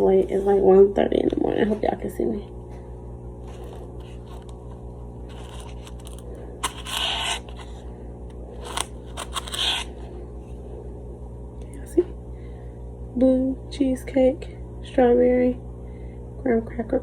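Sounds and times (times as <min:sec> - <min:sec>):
low electrical hum: 0:00.0 - 0:17.0
scraping and rustling: 0:03.4 - 0:07.8, 0:08.6 - 0:10.0.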